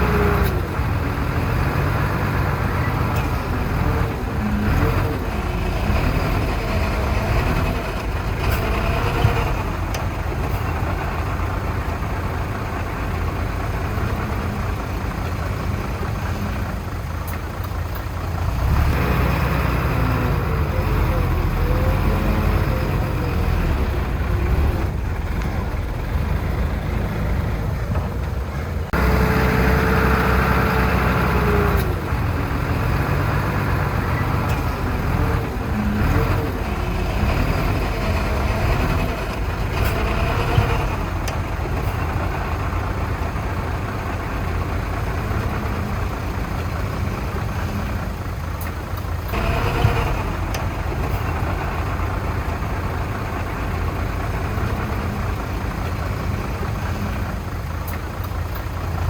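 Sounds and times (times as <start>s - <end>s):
heavy diesel engines working: 0.0s - 59.0s.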